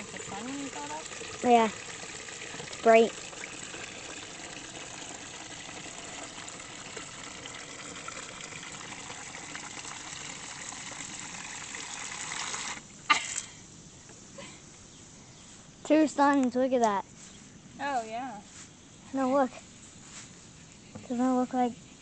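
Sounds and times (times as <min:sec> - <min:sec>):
water running from a spigot: 0:00.0 - 0:12.9.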